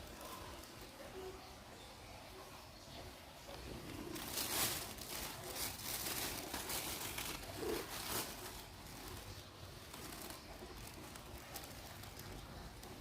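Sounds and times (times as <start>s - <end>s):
plastic bag rustling: 3.5s - 13.0s.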